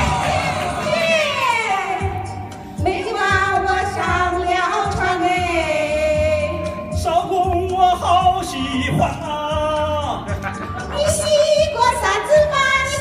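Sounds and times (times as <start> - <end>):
band with low beat: 2.0 - 12.0.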